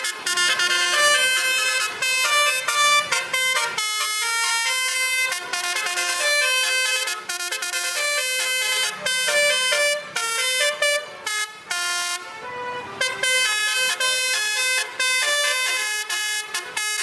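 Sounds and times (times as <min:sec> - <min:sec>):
multi-tone truck air horn melody: 0:00.0 - 0:17.0.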